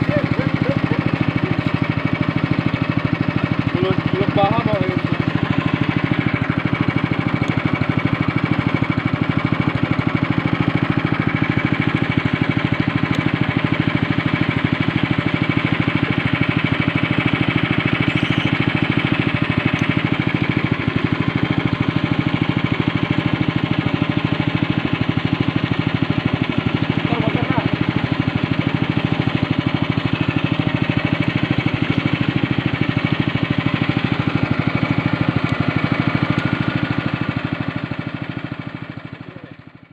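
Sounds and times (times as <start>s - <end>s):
speedboat engine running: 0.0s - 39.9s.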